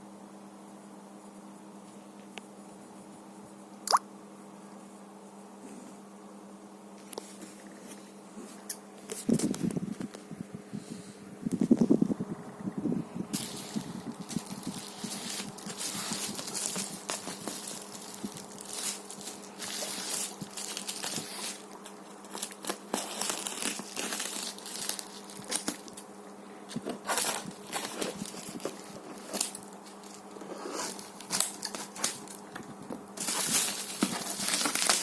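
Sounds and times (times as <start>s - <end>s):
steady low hum: 0.0s - 35.0s
plastic and paper crinkling: 13.3s - 35.0s.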